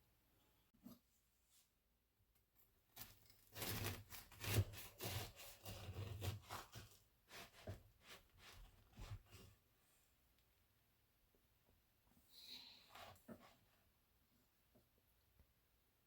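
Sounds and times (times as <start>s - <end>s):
bread knife sawing through loaf: 3.0s - 9.4s.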